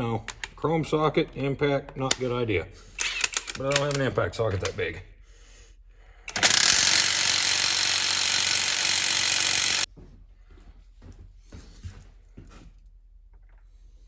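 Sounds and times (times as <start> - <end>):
impact wrench hammering: 6.3 - 9.9.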